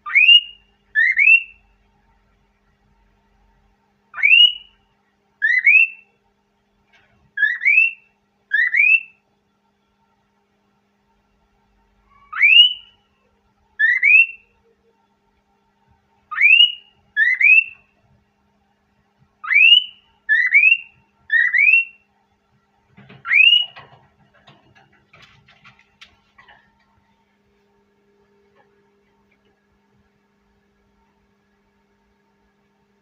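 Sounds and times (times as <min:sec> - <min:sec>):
cockatiel whistling: 0:00.0 - 0:01.6, 0:04.2 - 0:04.7, 0:05.4 - 0:06.0, 0:07.4 - 0:09.2, 0:13.8 - 0:14.4, 0:16.3 - 0:17.8, 0:19.4 - 0:22.0, 0:23.2 - 0:23.8
faint rustling and clicking: 0:22.5 - 0:27.8.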